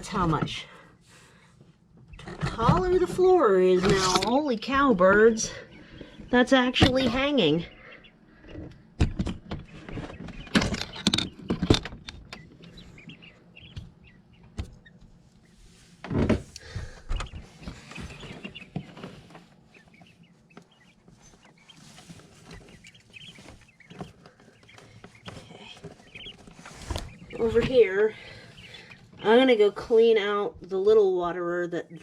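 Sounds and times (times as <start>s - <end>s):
knocks and rattles: 8.4s - 15.1s
rustling scrape: 15.2s - 16.5s, 17.4s - 27.8s.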